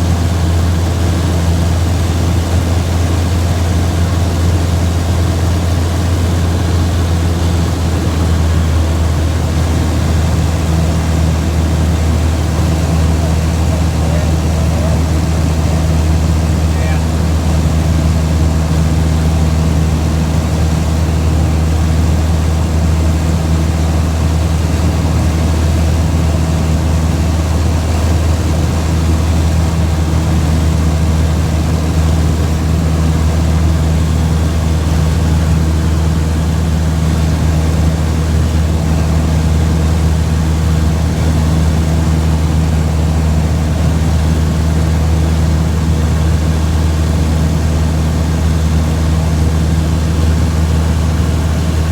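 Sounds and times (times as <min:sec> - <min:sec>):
vehicle engine drone: 0:00.0 - 0:51.9.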